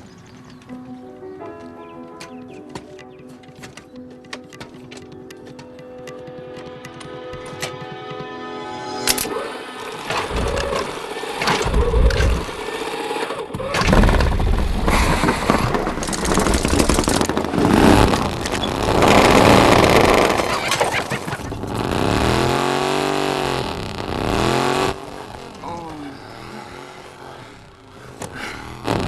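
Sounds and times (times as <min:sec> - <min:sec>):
motorcycle engine starting and revving: 0:04.4 - 0:29.0.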